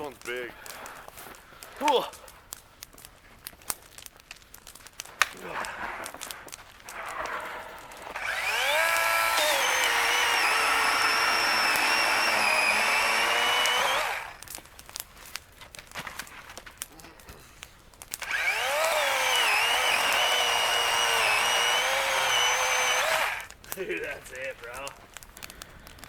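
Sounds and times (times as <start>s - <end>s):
electric chainsaw whining: 8.0s - 14.4s, 18.2s - 23.5s.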